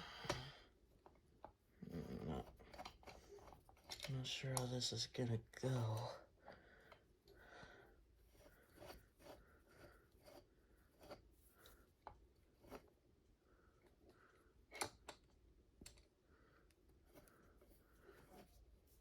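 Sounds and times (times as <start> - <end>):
faint clicks and metal knocks: 13.8 - 17.7.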